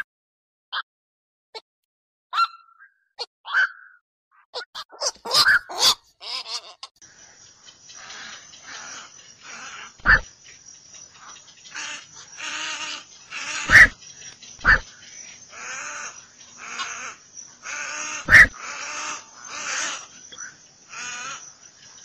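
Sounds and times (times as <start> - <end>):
herons croaking calls: 4.6 - 22.0
loud sharp bird calls: 4.8 - 22.0.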